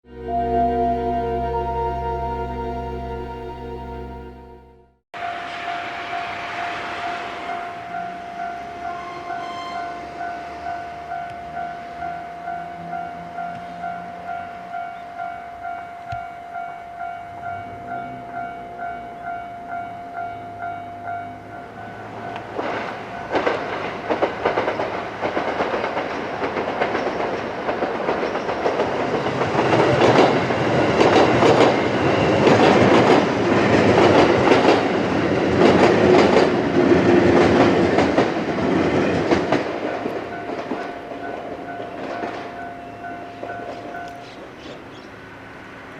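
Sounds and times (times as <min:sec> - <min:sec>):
level crossing warning bell: 0:00.1 - 0:24.6, 0:29.0 - 0:37.4, 0:38.7 - 0:44.6
train wheels clacking: 0:22.0 - 0:44.4.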